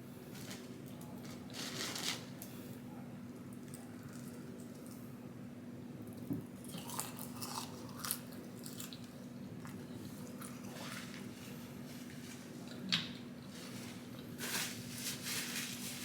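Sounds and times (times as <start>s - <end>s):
person chewing food: 6.6s - 11.0s.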